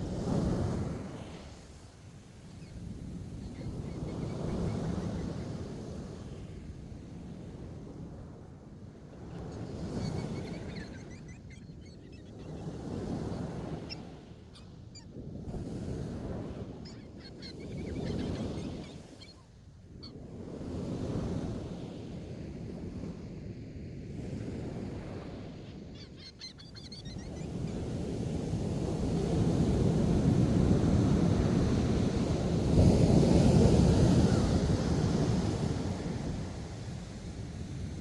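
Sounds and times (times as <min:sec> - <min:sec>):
wind on microphone: 0:00.0 - 0:26.2, 0:26.9 - 0:38.0
bird calls: 0:26.0 - 0:27.7.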